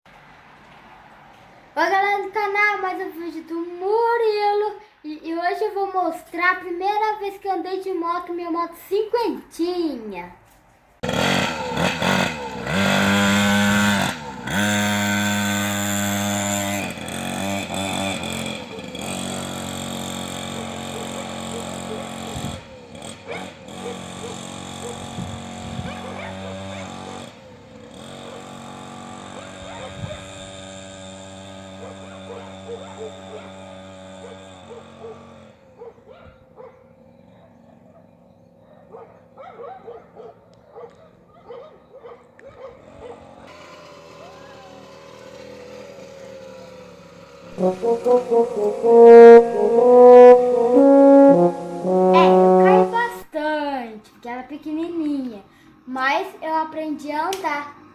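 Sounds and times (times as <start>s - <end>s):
mini motorcycle engine revving: 11.0s - 35.7s, 43.4s - 47.5s.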